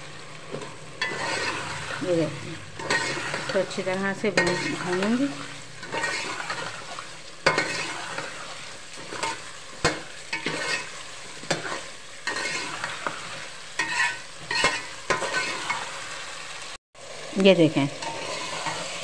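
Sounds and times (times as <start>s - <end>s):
potatoes sizzling in a pot: 0.0s - 19.0s
spoon scraping and knocking pot: 0.5s - 1.7s, 2.8s - 5.2s, 5.8s - 13.2s, 13.8s - 15.8s.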